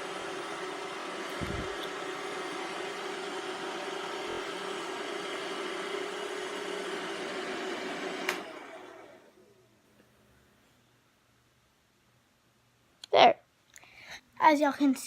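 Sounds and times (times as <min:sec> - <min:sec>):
robot vacuum running: 0:00.0 - 0:09.4.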